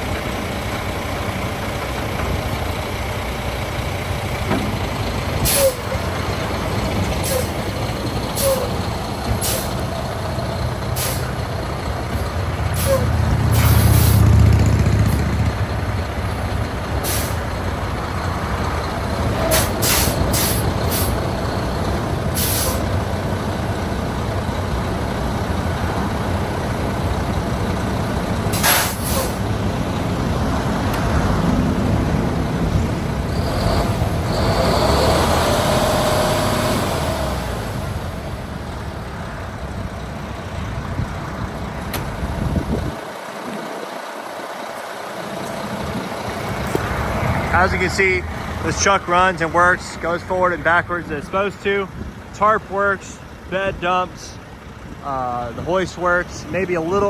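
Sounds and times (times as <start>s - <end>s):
diesel truck engine running: 0.0s - 57.0s
air brake hisses: 5.4s - 5.9s, 7.2s - 7.6s, 8.4s - 8.8s, 9.4s - 9.8s, 11.0s - 11.3s, 12.8s - 14.2s, 17.0s - 17.4s, 19.5s - 21.2s, 22.4s - 22.9s, 28.6s - 29.4s.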